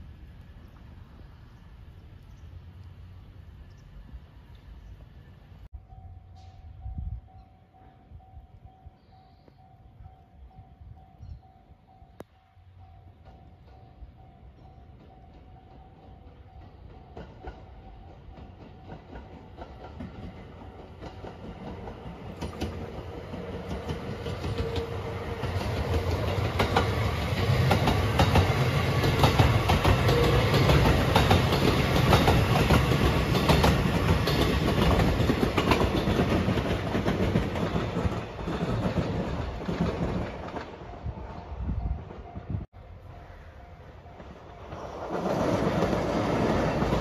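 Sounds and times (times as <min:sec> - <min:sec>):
electric train passing: 0:00.0 - 0:47.0
wheels clicking over rail joints: 0:13.1 - 0:41.0.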